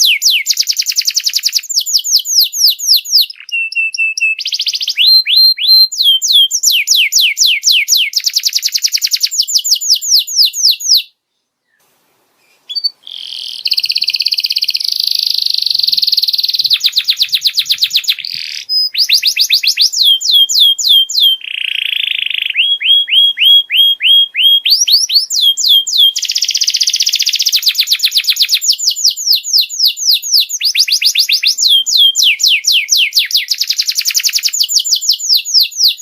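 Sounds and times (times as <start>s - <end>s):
canary singing trills: 0.0s - 11.8s, 12.4s - 36.0s.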